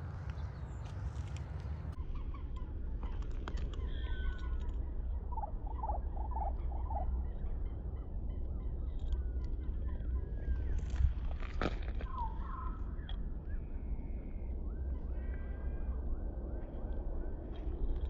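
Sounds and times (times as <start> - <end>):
wild birds calling: 0.0 - 11.1
wind rumble on microphone: 0.0 - 18.0.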